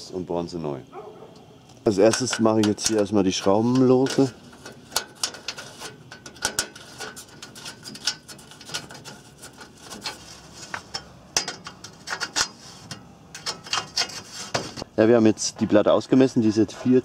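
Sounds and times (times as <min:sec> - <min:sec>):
spanner clicking on metal: 0:01.9 - 0:10.2.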